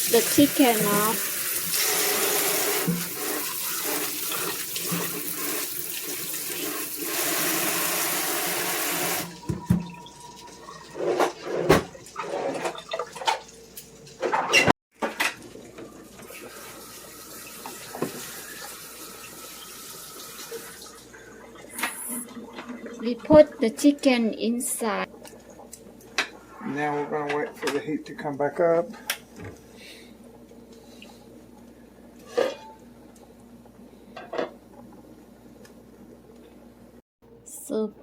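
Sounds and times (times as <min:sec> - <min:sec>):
tap running into sink: 0:07.1 - 0:10.2.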